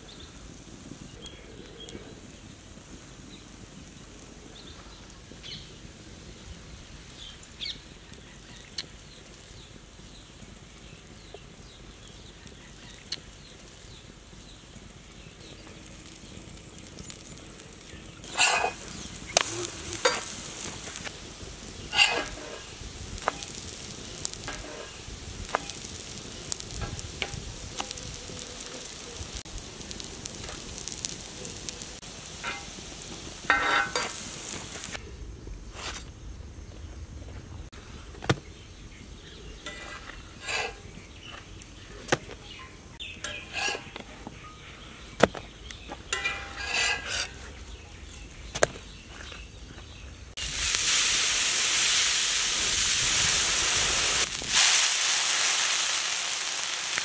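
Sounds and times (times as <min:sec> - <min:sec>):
pancakes sizzling in oil: 0:00.0 - 0:35.0, 0:35.6 - 0:57.0
oil crackling and spitting: 0:00.1 - 0:35.0, 0:50.3 - 0:57.0.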